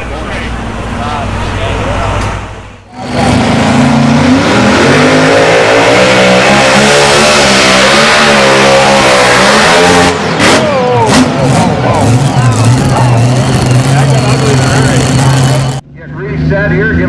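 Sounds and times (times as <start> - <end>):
tractor engine at full throttle: 0.0 - 16.9.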